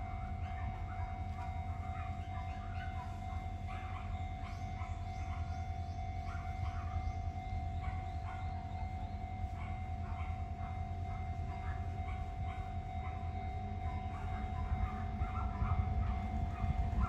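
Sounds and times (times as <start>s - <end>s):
train hum: 0.0s - 17.0s.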